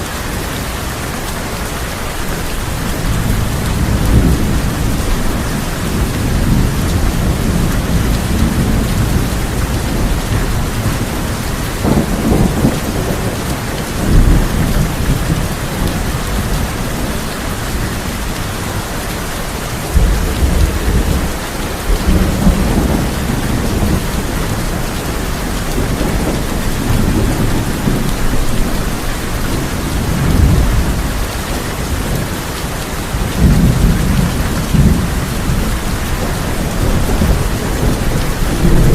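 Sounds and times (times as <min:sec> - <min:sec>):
heavy rain on tin roof: 0:00.0 - 0:38.9
thunder rumbling: 0:02.2 - 0:38.9.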